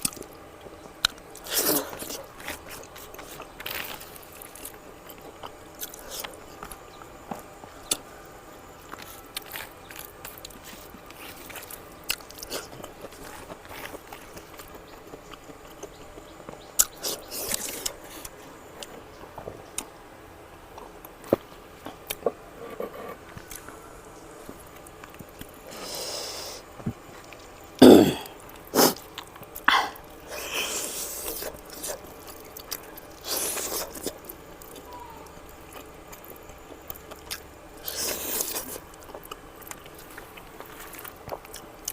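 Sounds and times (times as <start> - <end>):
person chewing: 0.0 - 6.8, 8.8 - 19.0, 24.5 - 41.9
person coughing: 27.8 - 28.3.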